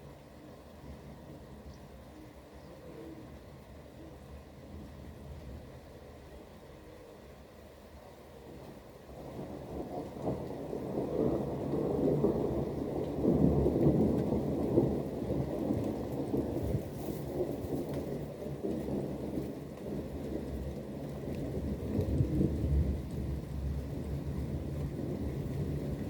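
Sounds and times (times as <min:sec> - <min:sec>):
rain: 0:00.0 - 0:26.0
thunder rumbling: 0:08.5 - 0:26.0.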